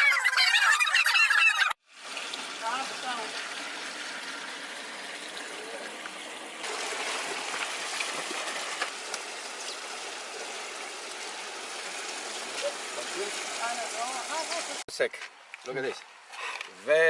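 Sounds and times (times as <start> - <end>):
spring water running: 1.8 - 14.8.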